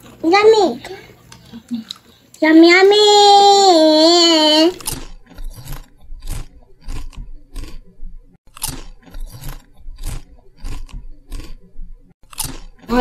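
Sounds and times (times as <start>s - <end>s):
chewing crisp fried food: 4.8s - 7.8s, 8.5s - 12.9s.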